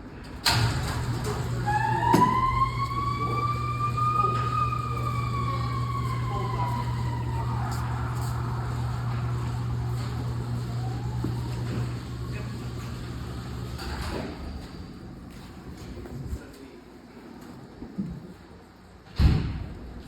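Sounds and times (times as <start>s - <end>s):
diesel engine rumbling: 0.4s - 15.3s
fire truck siren winding: 0.5s - 14.0s.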